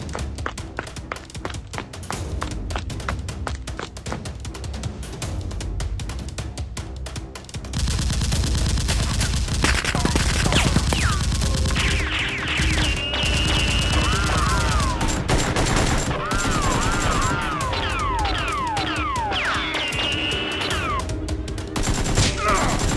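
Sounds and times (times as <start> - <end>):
background music: 0.0 - 22.9
automatic gunfire bursts: 7.8 - 17.6, 21.8 - 22.9.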